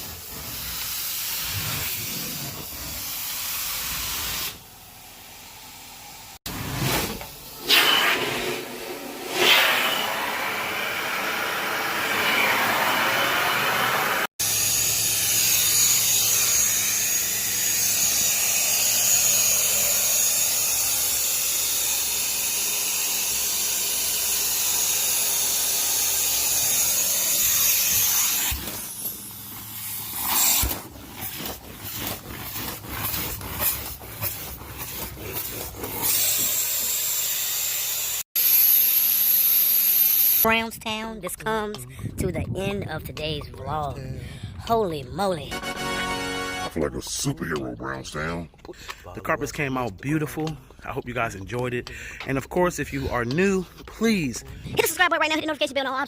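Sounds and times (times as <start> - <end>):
repeated cleaning strokes: 0.0 - 4.6, 15.4 - 38.2
carpet cleaner hissing: 7.0 - 16.6.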